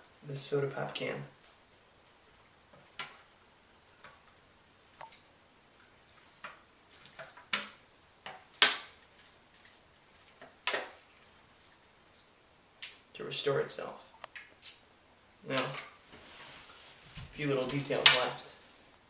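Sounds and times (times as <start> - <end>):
aluminium can crinkling and popping: 2.4 - 13.1, 14.2 - 14.8.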